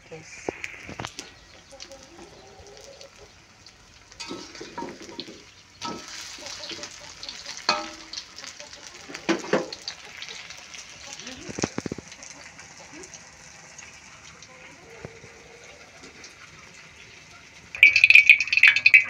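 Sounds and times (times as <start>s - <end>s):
batter sizzling in hot oil: 0.5s - 19.0s
metal spatula knocking wok: 4.2s - 8.5s, 17.8s - 19.0s.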